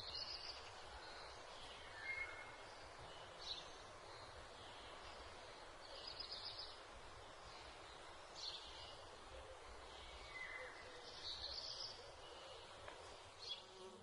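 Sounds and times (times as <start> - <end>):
faint outdoor ambience: 0.0 - 14.0.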